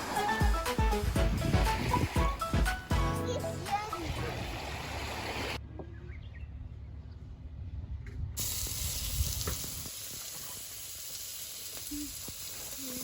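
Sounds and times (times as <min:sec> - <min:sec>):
steady sizzling hiss: 0:08.4 - 0:13.0.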